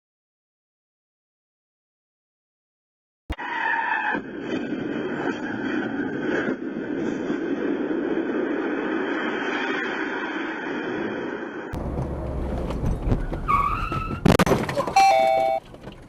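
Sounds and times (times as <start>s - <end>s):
car road and engine noise: 3.3s - 16.0s
brief steady tone: 15.0s - 15.6s.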